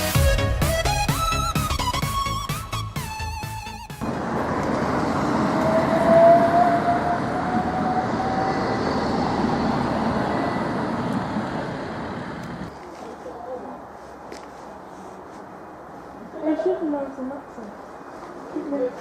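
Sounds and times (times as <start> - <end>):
train wheels rumbling on rail: 4.0 - 12.7.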